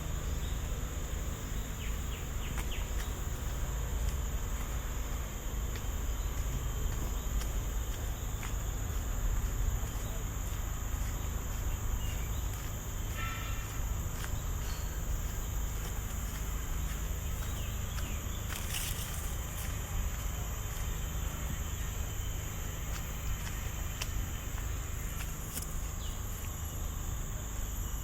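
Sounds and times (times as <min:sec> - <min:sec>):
insects chirring: 0:00.0 - 0:28.0
soft footsteps: 0:01.2 - 0:26.6
rustle: 0:12.5 - 0:19.8.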